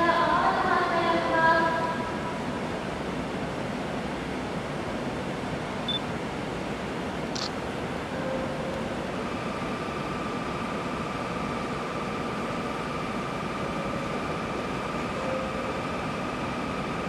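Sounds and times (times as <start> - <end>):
train equipment hiss and hum: 0.0 - 17.0
high ringing tone: 15.2 - 15.9.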